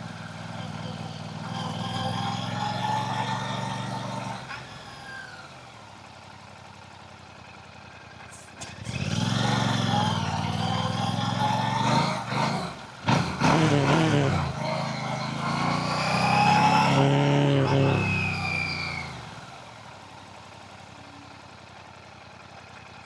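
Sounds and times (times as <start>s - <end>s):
motorcycle engine revving: 0.0s - 6.0s, 8.5s - 20.9s.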